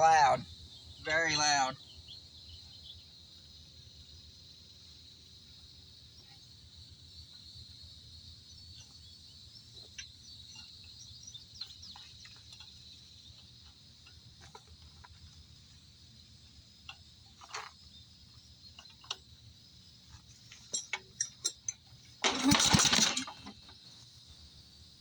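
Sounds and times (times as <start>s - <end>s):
bird chirps: 8.4s - 13.6s.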